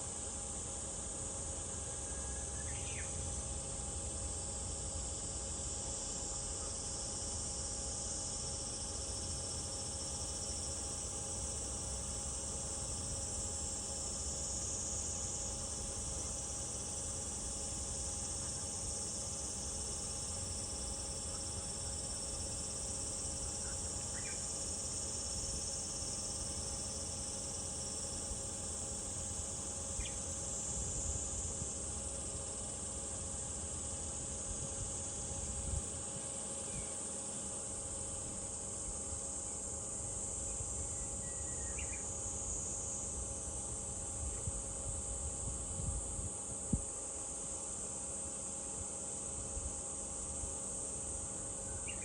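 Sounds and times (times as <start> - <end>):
cicadas buzzing: 0.2 - 52.0.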